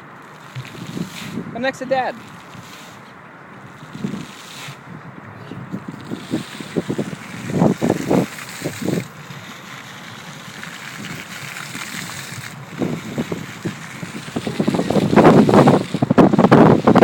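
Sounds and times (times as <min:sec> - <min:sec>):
fountain water splashing: 0:00.0 - 0:17.0
wind on microphone: 0:00.0 - 0:17.0.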